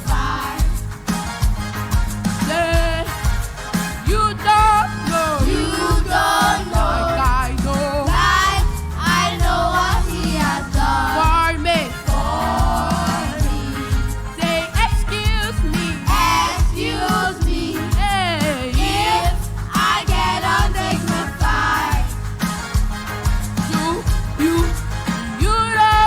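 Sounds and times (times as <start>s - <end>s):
children's choir singing: 0.0s - 1.5s, 4.1s - 22.8s
band with bass and drums: 0.0s - 26.0s.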